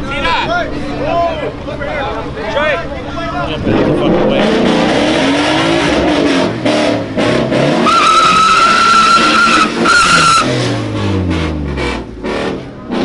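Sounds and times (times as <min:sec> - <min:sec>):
car engine revving: 0:01.2 - 0:13.0
tyre squeal: 0:07.8 - 0:10.5.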